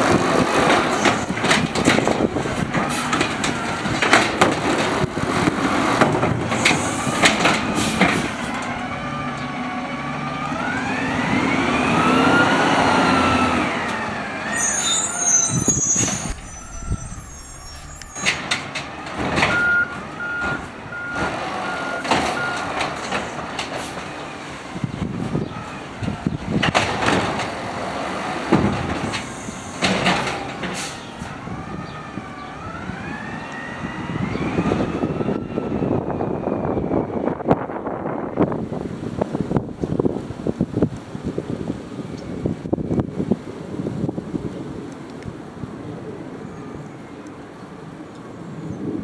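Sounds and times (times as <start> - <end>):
hydraulic arm whining: 0.8 - 20.0
high squeal: 14.4 - 19.7.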